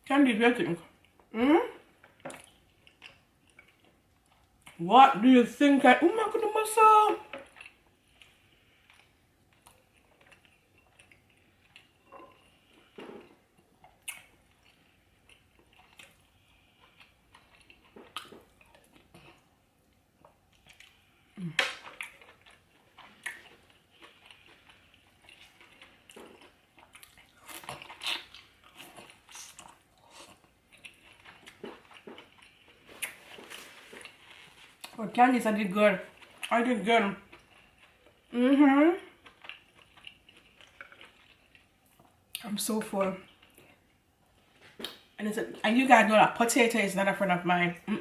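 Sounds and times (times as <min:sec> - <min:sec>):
chewing: 0:02.0 - 0:04.8, 0:07.3 - 0:35.0, 0:37.2 - 0:38.4, 0:39.1 - 0:42.4, 0:43.2 - 0:45.1.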